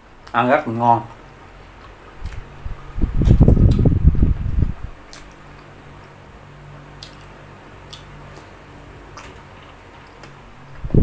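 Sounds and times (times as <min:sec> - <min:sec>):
electric fan humming: 0:00.0 - 0:11.0
wet chewing clicks: 0:01.4 - 0:03.9, 0:05.0 - 0:05.7, 0:07.0 - 0:10.4.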